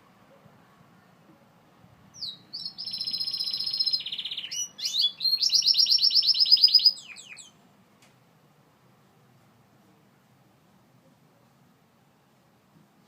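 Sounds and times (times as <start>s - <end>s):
canary singing trills: 2.1s - 7.6s.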